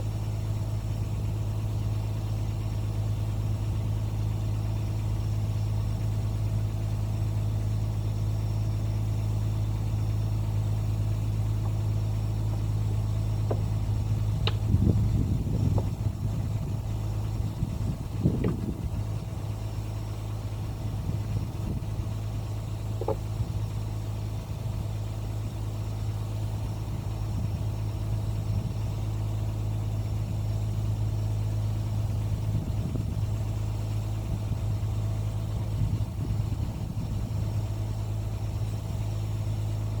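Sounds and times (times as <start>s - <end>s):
excavator diesel engine idling: 0.0s - 40.0s
faint knocks: 23.0s - 23.2s.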